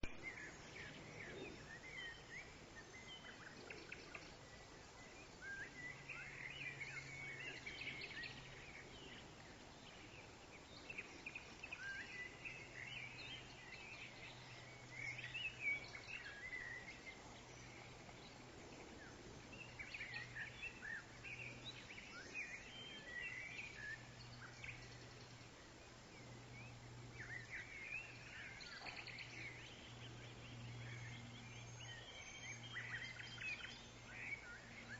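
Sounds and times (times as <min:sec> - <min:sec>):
birds chirping and twittering: 0:00.0 - 0:34.9
faint steady low hum: 0:00.0 - 0:34.9.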